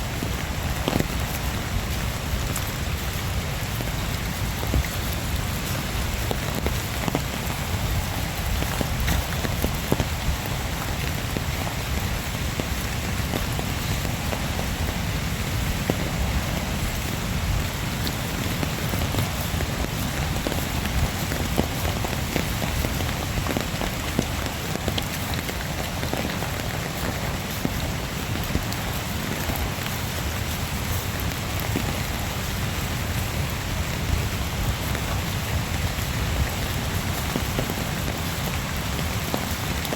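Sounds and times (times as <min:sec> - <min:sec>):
rain drops: 0:00.0 - 0:39.9.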